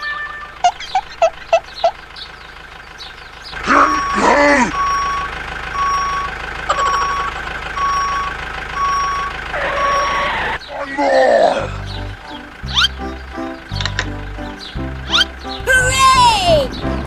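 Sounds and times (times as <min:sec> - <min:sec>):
low engine hum: 0:00.6 - 0:17.0
reversing alarm beeping: 0:03.6 - 0:10.7
wavering voice-like sound: 0:10.8 - 0:12.0.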